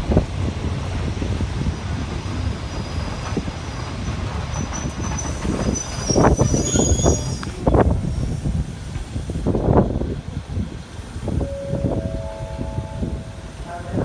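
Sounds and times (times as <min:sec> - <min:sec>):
loud train thumps: 0:00.0 - 0:06.9
train wheels rumbling on rails: 0:00.0 - 0:14.0
high brake squeal: 0:04.5 - 0:07.6.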